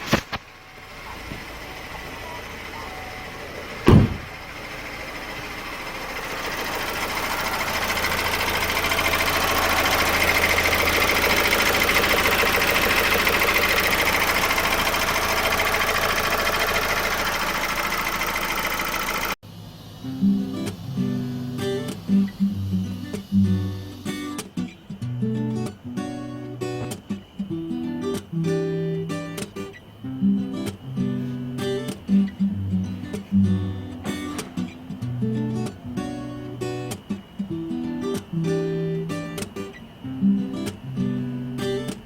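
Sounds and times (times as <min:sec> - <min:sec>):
diesel engine ticking rattle: 0:00.4 - 0:23.5
sharp engine knock: 0:03.8 - 0:04.5.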